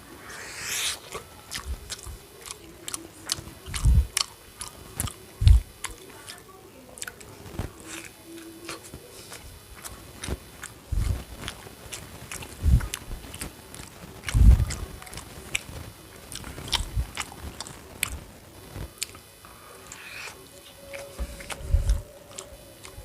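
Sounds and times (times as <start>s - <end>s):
person chewing food: 0.0s - 6.4s, 7.0s - 23.0s
wet mouth clicks: 0.2s - 6.0s.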